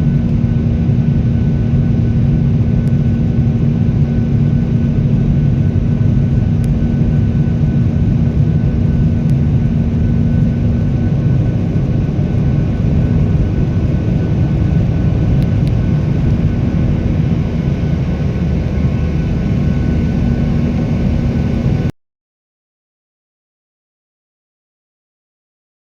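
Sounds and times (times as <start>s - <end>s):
jet engine cabin rumble: 0.0s - 21.9s.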